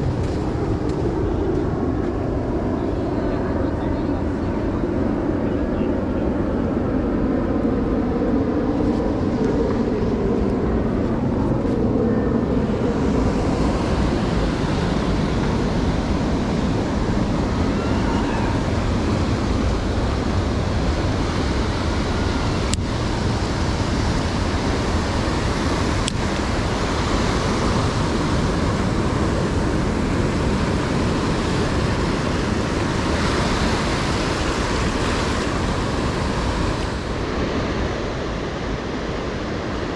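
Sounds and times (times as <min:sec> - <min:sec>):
aircraft engine drone: 0:00.0 - 0:39.9
wind on microphone: 0:00.0 - 0:39.9
surf breaking on beach: 0:12.4 - 0:39.9.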